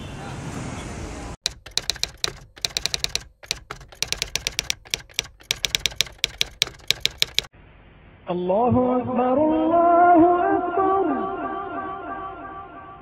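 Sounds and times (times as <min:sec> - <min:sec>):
typewriter key strikes: 0:01.4 - 0:07.5.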